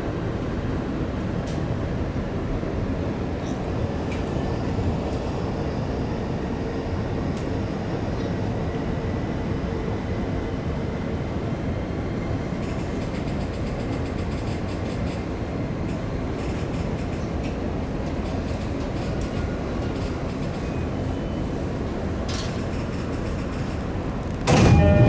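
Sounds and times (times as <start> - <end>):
train wheels rumbling on rail: 0.0 - 25.0
high whine: 24.4 - 25.0.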